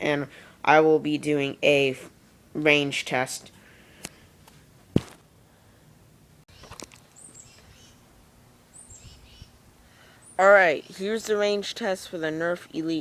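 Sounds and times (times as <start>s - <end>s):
outdoor ambience: 0.0s - 13.0s
high falling bird chirps: 6.5s - 8.1s, 8.7s - 11.0s.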